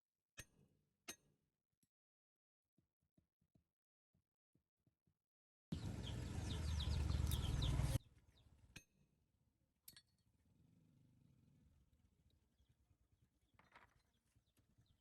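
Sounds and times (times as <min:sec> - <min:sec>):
birds chirping: 0:05.7 - 0:08.4.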